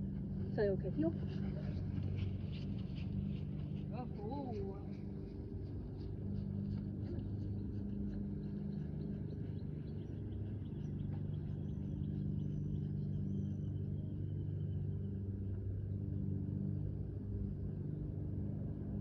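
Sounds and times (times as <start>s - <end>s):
quick light rhythmic ticks: 0.0s - 13.6s.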